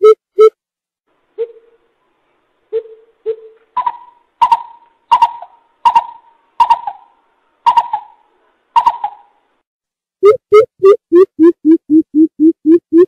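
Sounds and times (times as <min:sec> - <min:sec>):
bird hooting calls: 0:01.4 - 0:01.9, 0:02.7 - 0:09.4.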